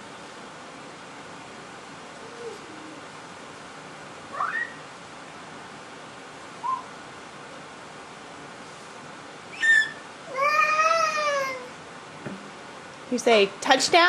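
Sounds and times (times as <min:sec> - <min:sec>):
young child squealing and calling: 0:09.6 - 0:11.7.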